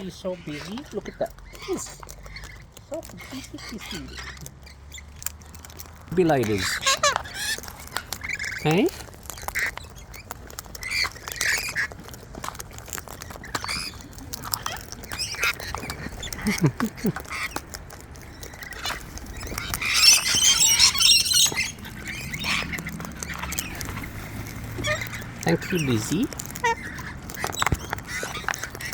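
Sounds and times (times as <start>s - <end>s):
cockatoos squawking: 0.0s - 28.9s
small clicks and taps: 0.6s - 25.5s, 26.1s - 28.9s
harsh bird screech: 18.8s - 26.2s.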